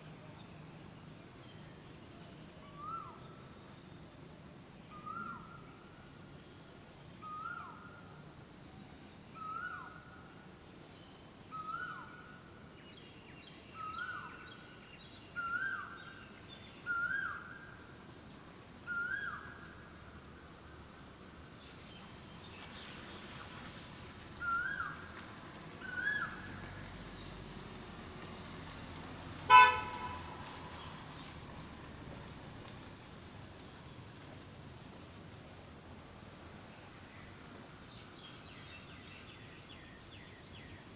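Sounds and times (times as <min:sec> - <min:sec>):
bird calling: 0:24.4 - 0:25.1.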